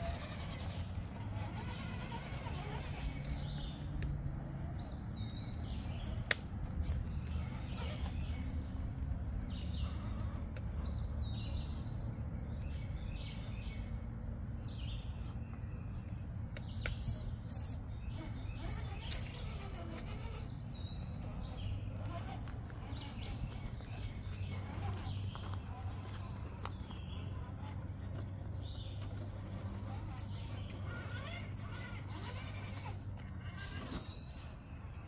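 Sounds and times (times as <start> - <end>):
songbird singing: 0.0 - 35.0.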